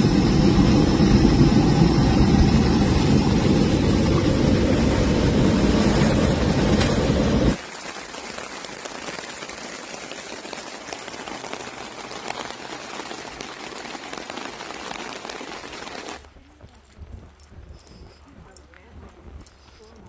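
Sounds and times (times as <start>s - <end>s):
steady rain falling: 3.8s - 16.2s.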